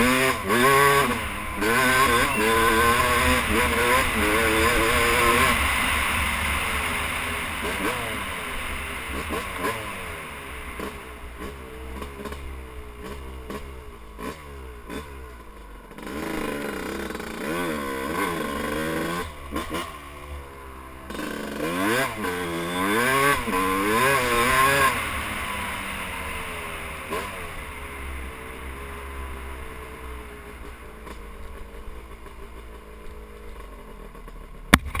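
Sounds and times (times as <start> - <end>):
dirt bike engine revving: 0.0 - 32.8
sharp click: 34.7 - 35.0.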